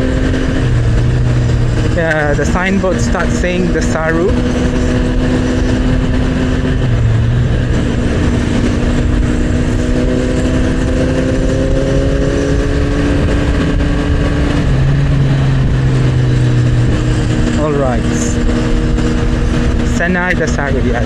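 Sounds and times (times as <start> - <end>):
motorcycle engine running: 0.0 - 21.0
wind and road noise: 0.0 - 21.0.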